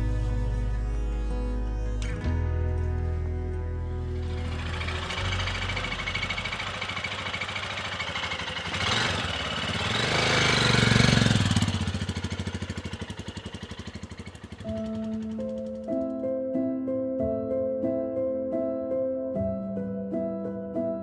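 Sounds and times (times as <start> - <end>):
single-cylinder motorcycle engine running: 4.0 - 15.9.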